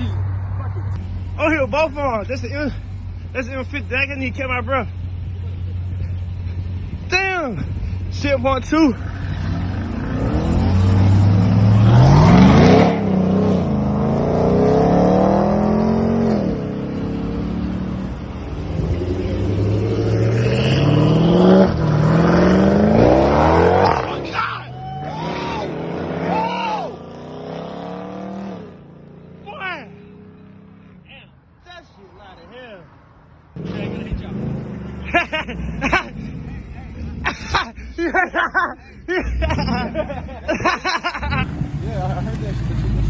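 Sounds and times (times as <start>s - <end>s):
car engine revving hard: 9.0s - 24.3s, 25.1s - 29.4s.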